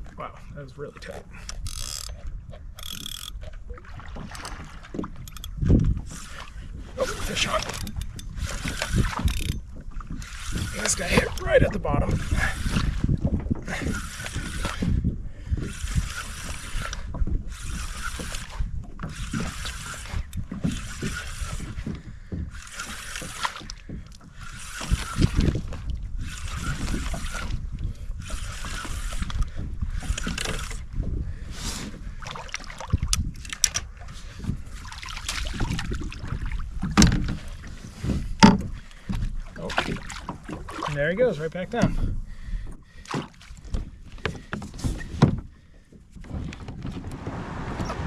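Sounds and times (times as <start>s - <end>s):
wind and water rumble: 0.0s - 48.0s
fishing reel cranking: 1.3s - 3.5s, 4.4s - 13.1s, 13.7s - 15.0s, 15.6s - 21.9s, 22.5s - 30.9s.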